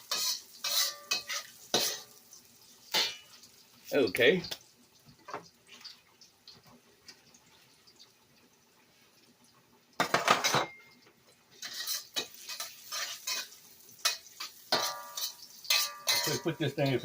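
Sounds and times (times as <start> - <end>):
metal spatula scraping frying pan: 0.0 - 2.2, 11.5 - 17.0.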